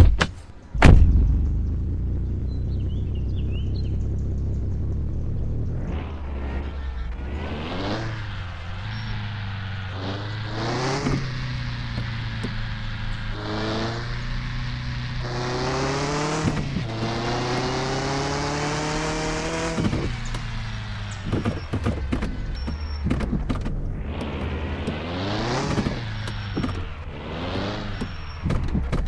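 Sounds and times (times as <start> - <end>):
sharp knocks: 0.0 - 1.5
car engine accelerating: 0.6 - 29.0.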